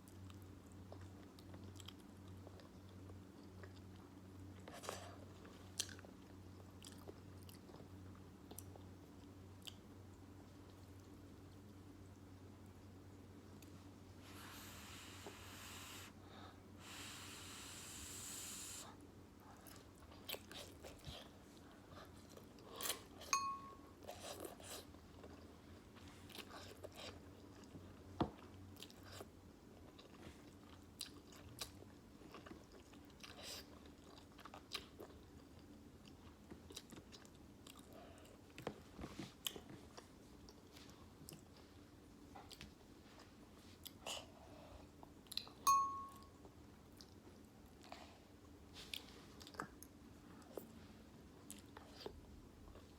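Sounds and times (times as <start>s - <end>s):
wet chewing and mouth sounds: 19.5s - 23.3s, 24.0s - 45.6s, 46.9s - 52.9s.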